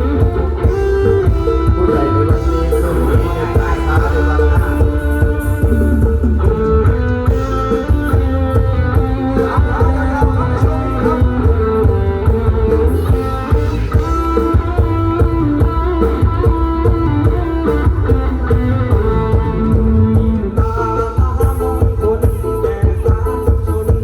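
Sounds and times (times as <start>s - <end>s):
instrumental band music: 0.0s - 24.0s.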